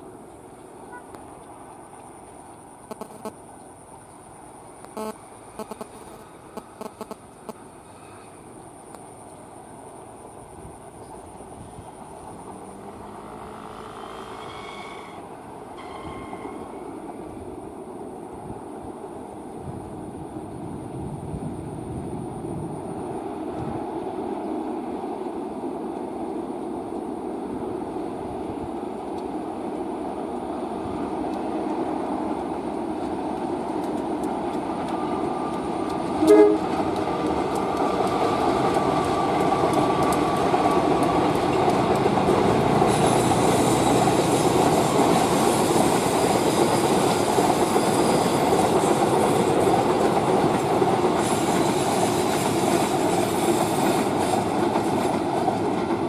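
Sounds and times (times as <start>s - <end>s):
train rumbling: 0.0s - 56.0s
train horn blast: 12.7s - 16.9s, 36.2s - 36.8s
wheels clicking over rail joints: 31.1s - 56.0s.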